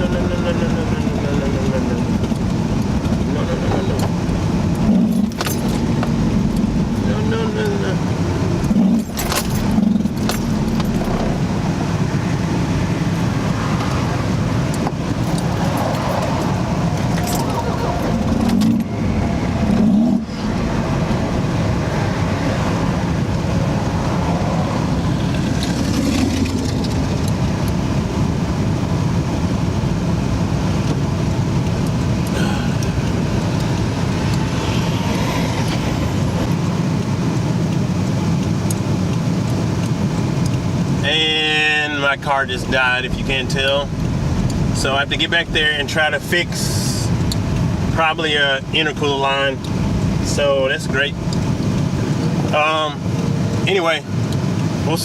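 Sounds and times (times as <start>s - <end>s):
engine noise inside car cabin: 0.0s - 55.0s
road noise: 0.0s - 55.0s.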